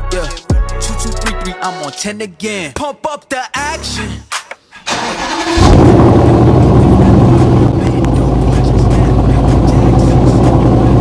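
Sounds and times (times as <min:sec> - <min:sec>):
car engine running: 0:05.4 - 0:11.0.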